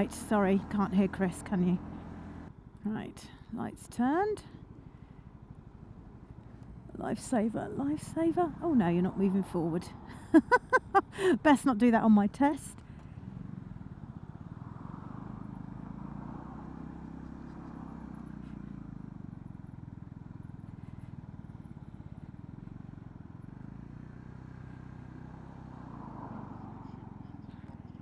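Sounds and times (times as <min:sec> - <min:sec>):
motorcycle engine running: 0:00.0 - 0:02.6, 0:12.8 - 0:28.0.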